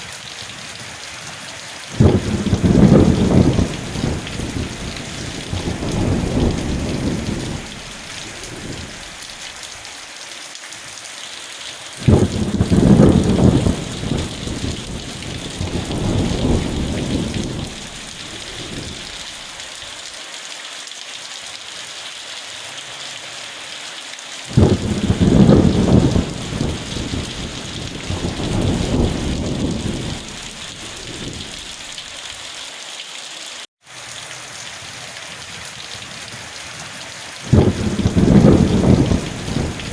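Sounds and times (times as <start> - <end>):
steady rain falling: 0.0 - 39.9
thunder rumbling: 1.9 - 9.4, 12.0 - 19.6, 24.5 - 32.1, 37.5 - 39.9.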